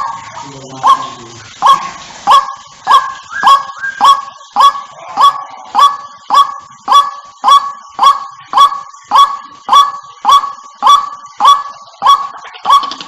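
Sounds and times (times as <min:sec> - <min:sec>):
waterhen calling: 0:00.0 - 0:13.0.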